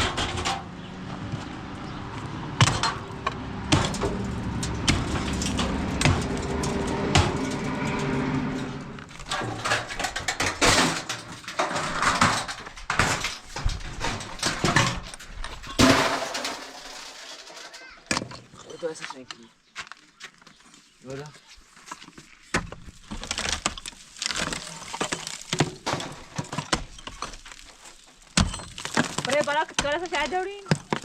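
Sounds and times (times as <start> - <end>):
demolition knocks and clatters: 0.0 - 1.4, 2.6 - 18.8, 22.5 - 31.0.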